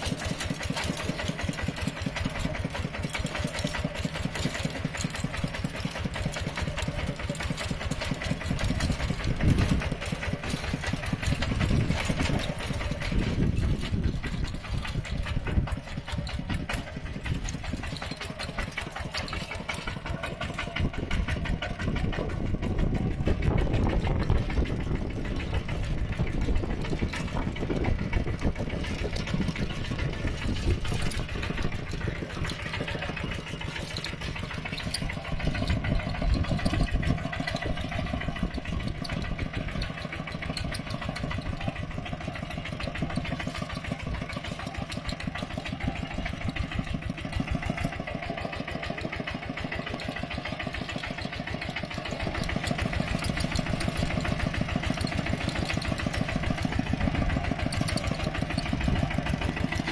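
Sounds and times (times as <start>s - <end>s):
tractor engine chugging: 0.0s - 59.9s.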